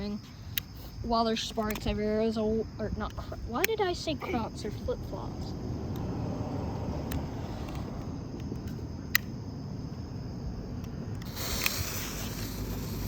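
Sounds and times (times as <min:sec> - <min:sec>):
sharp click: 0:08.4 - 0:09.4
smoke bomb firework fizzing: 0:11.2 - 0:13.0.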